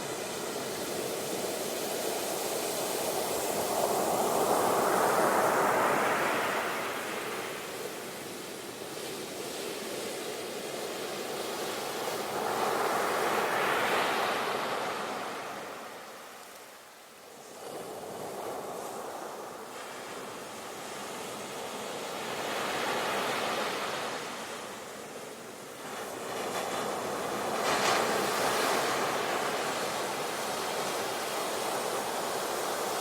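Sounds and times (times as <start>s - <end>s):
sea waves breaking on shore: 25.8s - 33.0s.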